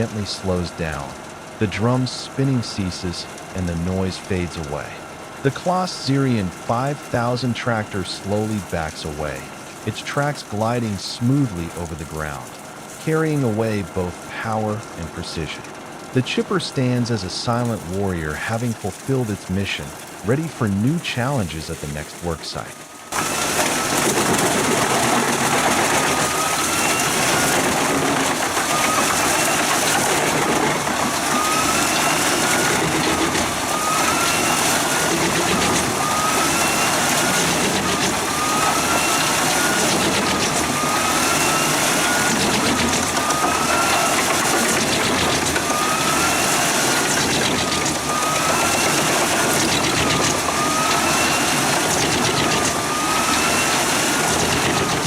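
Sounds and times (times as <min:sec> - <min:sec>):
wood chipper running: 0:00.0 - 0:55.0.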